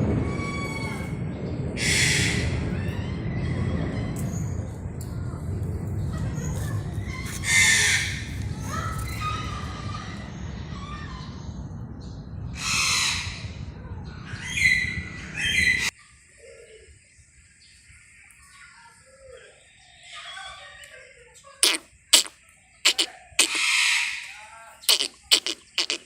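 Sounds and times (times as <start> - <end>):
steady low rumble: 0.0 - 15.9
peafowl calling: 1.8 - 4.4, 6.6 - 9.8, 22.9 - 26.0.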